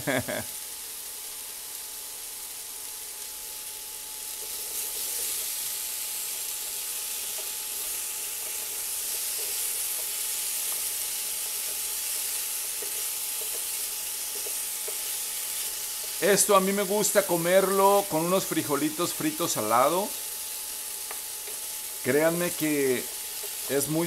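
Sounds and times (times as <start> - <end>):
potatoes sizzling in oil: 0.0 - 24.0
potato pieces knocking against pan: 7.3 - 16.2.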